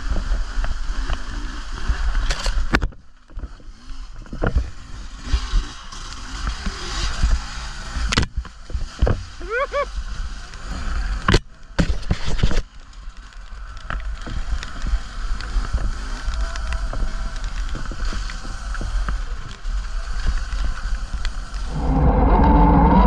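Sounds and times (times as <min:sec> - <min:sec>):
bike knocks and rattles: 0:08.0 - 0:09.3
wind rushing over microphone: 0:14.2 - 0:23.0
low rumble: 0:21.4 - 0:23.0.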